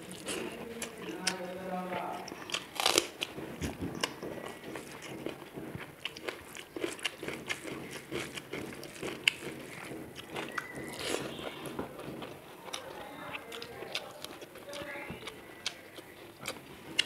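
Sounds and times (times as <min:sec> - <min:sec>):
fingers mixing rice on steel plate: 0:00.0 - 0:17.0
person chewing: 0:00.0 - 0:17.0
crunchy clicks and wet smacks: 0:00.1 - 0:17.0.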